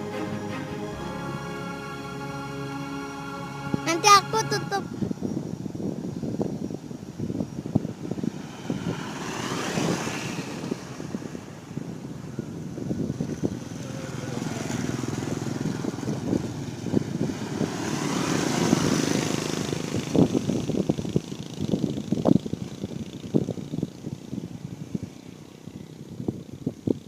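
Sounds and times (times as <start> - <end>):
vehicles passing: 0.0 - 5.9, 7.6 - 26.2
vehicle rumble: 4.8 - 26.4.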